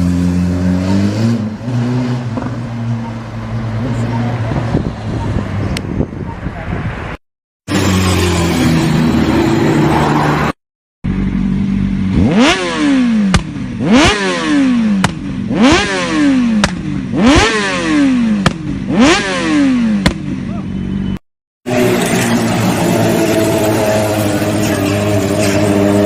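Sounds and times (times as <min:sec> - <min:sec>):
motorcycle engine revving: 0:00.0 - 0:04.1, 0:07.7 - 0:26.0.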